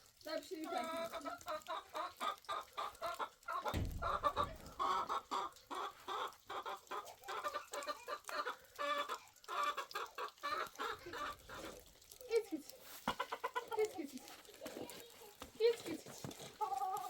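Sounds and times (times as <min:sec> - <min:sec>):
chickens clucking: 0:00.3 - 0:17.0
low thud: 0:03.7 - 0:05.3.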